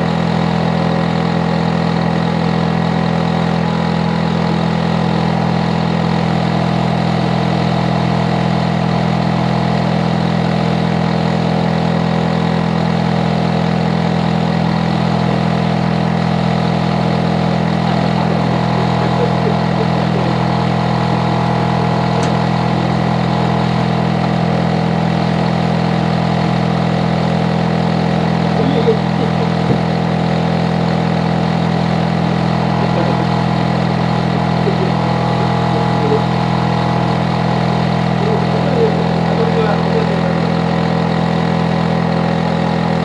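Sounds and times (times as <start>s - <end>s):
air conditioner humming: 28.4s - 30.6s.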